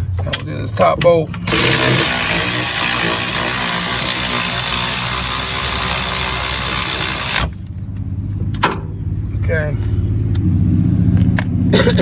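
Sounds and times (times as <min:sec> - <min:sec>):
power ratchet whirring: 0:01.4 - 0:08.4.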